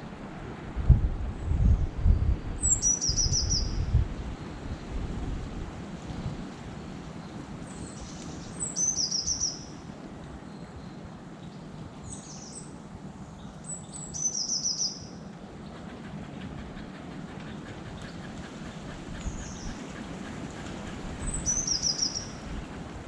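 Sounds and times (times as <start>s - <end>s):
steady low rumble: 0.0s - 6.5s
songbird trilling: 2.6s - 3.9s, 7.7s - 9.8s, 13.6s - 15.2s, 21.2s - 22.5s.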